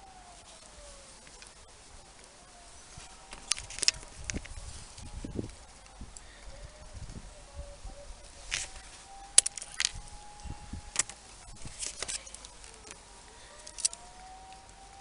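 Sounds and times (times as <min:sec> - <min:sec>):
hand tool snipping cable: 0:08.5 - 0:10.0, 0:13.6 - 0:14.8.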